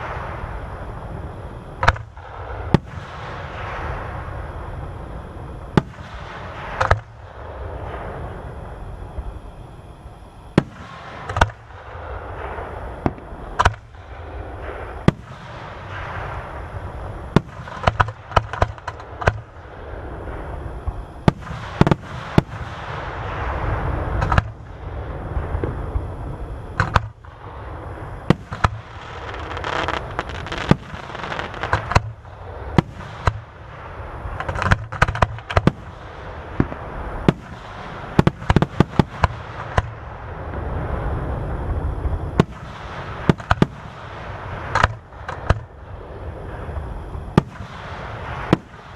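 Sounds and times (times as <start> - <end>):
crackling firework reports: 0.0 - 48.9
low rumble of fireworks: 0.0 - 48.9
firework shells bursting: 10.6 - 16.6, 17.2 - 19.6, 24.2 - 24.7, 26.8 - 27.4, 28.0 - 40.0, 42.4 - 45.7.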